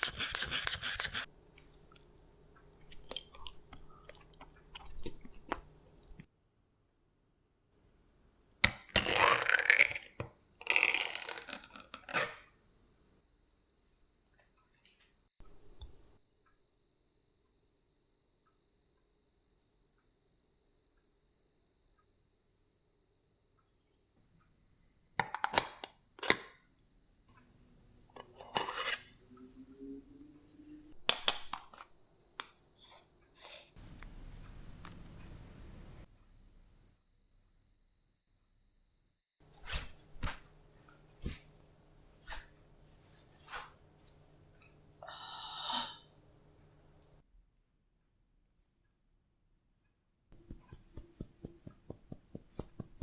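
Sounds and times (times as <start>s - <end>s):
crickets chirping: 12.4s - 42.8s
faint high whine: 29.1s - 31.0s.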